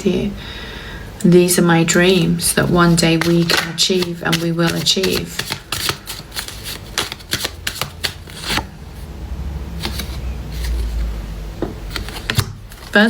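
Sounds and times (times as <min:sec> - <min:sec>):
cards being shuffled: 0:02.6 - 0:08.7, 0:09.8 - 0:13.0.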